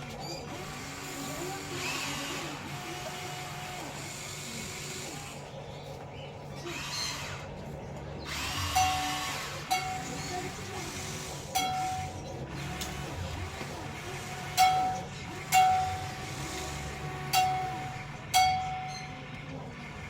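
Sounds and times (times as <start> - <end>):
small electric motors whining: 0.0 - 5.8, 6.5 - 20.0.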